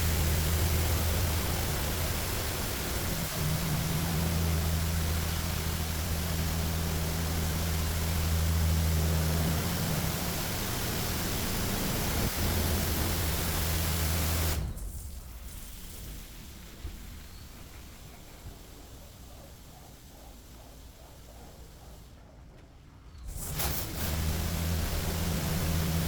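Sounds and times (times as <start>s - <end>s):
high pressure water jets hissing: 0.0s - 14.8s, 23.4s - 26.0s
low machine hum: 0.0s - 26.0s.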